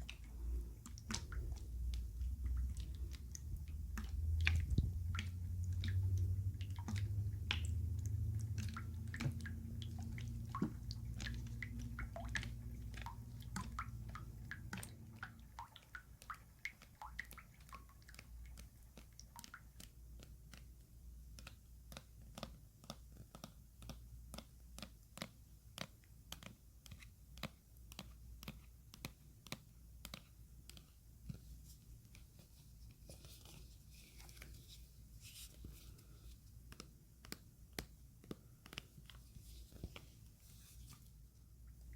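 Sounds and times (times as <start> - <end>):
low steady sound: 0.0 - 21.6
wet clicks and squishes: 0.0 - 41.9.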